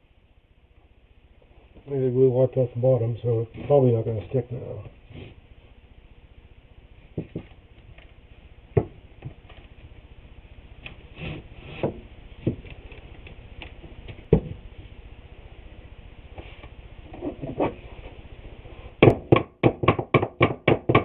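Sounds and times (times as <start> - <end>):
wooden boards knocking and clattering: 7.2 - 7.6, 11.8 - 12.8.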